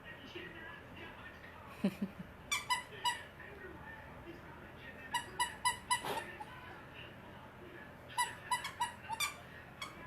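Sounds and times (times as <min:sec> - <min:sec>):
squeaky dog toy squeaking: 0:02.5 - 0:03.3, 0:05.1 - 0:06.3, 0:08.2 - 0:10.0.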